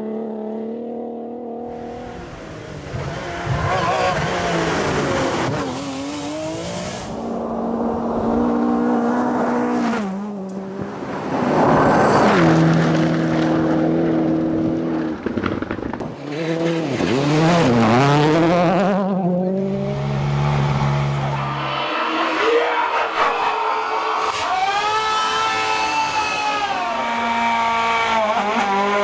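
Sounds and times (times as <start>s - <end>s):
rally car engine running hard: 13.3s - 29.0s.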